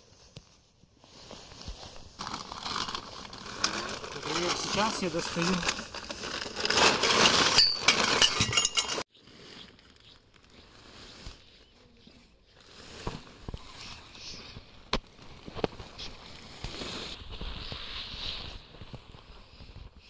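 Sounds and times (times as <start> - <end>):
bag rustling: 1.1 - 11.4
small hard items clinking: 2.2 - 9.1.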